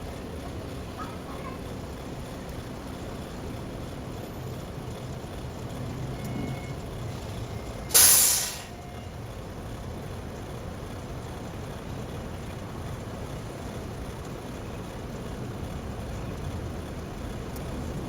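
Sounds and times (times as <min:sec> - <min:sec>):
truck engine running: 0:00.0 - 0:18.0
air brakes hissing: 0:06.1 - 0:09.3.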